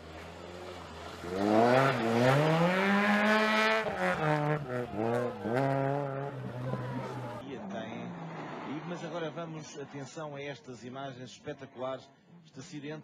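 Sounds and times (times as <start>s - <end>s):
rally car engine revving: 0.0s - 10.0s.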